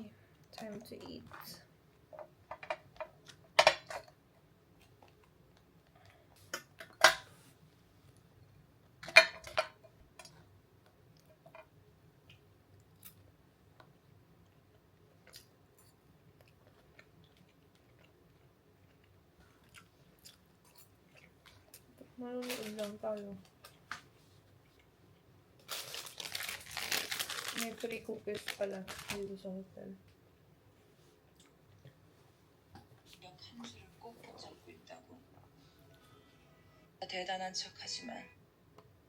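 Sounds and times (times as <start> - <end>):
faint low hum: 0.0 - 39.0
soft chewing: 4.7 - 6.6, 12.2 - 22.1, 22.9 - 25.8, 30.0 - 36.3.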